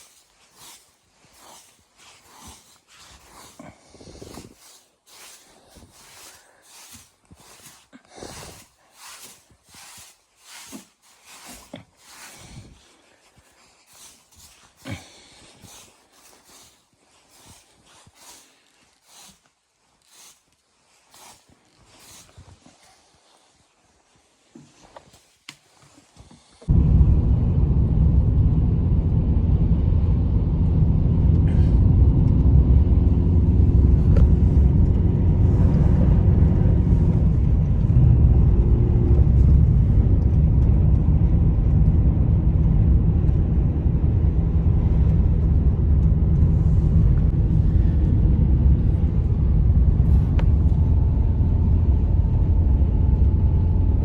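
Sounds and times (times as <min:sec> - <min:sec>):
strong wind on microphone: 0:26.7 - 0:54.0.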